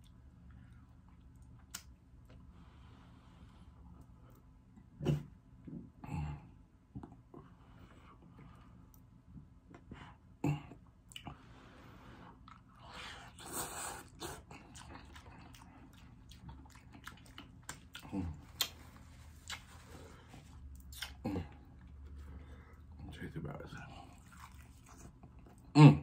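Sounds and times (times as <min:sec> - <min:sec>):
wet chewing with clicks: 0:00.0 - 0:02.4, 0:12.4 - 0:22.0, 0:24.0 - 0:25.7.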